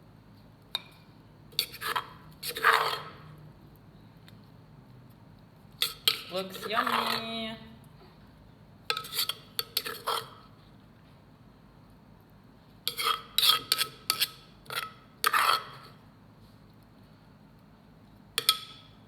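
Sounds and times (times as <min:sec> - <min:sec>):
metal spoon clinking and scraping: 0:01.5 - 0:03.3, 0:05.8 - 0:07.4, 0:08.9 - 0:10.4, 0:12.9 - 0:16.0, 0:18.4 - 0:18.9.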